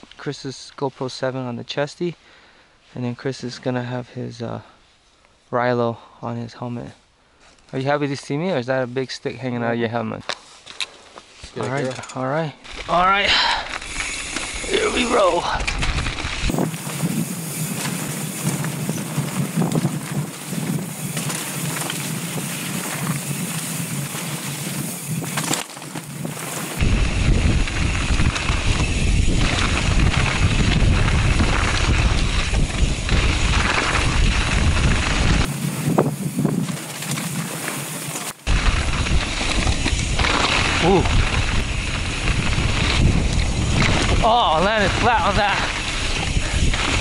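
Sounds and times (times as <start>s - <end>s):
bike tyres rattling on dirt: 10.7s - 47.0s
wind on microphone: 15.6s - 25.4s, 26.2s - 36.8s, 38.4s - 47.0s.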